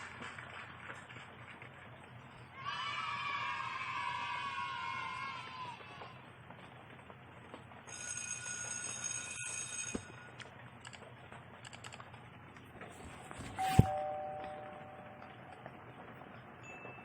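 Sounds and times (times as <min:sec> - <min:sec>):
high ringing tone: 0:13.4 - 0:15.9.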